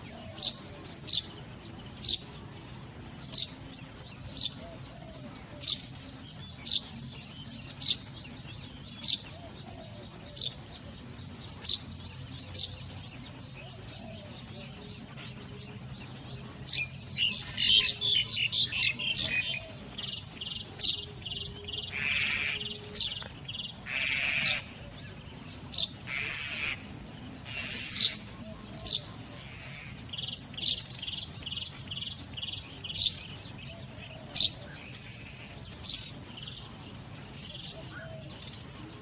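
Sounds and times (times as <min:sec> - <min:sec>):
birds chirping: 0:00.0 - 0:39.0
harsh raspy bird calls: 0:16.7 - 0:31.7.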